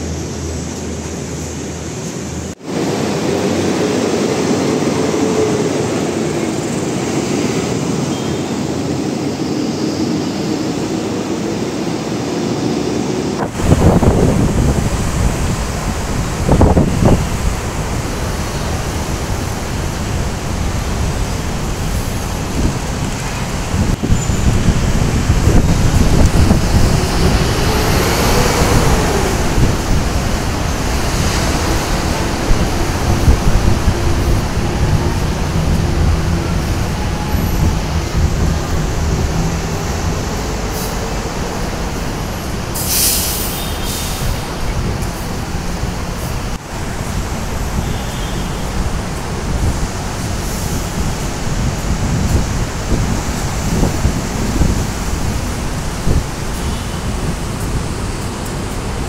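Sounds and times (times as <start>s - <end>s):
train rumbling past: 0.0s - 59.0s
wind noise on microphone: 12.6s - 59.0s.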